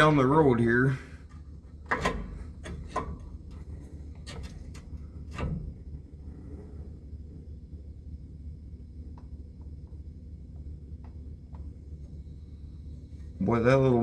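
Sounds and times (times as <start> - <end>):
steady low hum: 0.0 - 14.0
tools clicking and knocking: 1.3 - 5.6.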